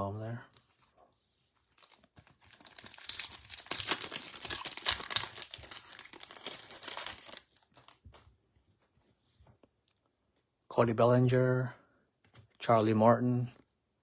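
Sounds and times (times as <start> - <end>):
foil wrapper crinkling and tearing: 1.8 - 8.0.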